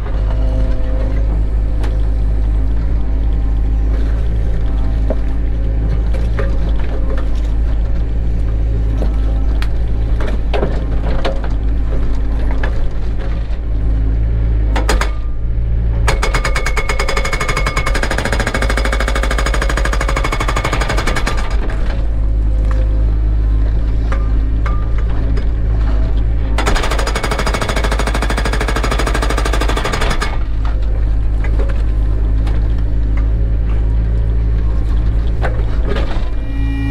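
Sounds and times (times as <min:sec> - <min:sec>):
excavator diesel engine running: 0:00.0 - 0:36.9
rapid mechanical hammering: 0:16.1 - 0:21.7, 0:26.6 - 0:30.5.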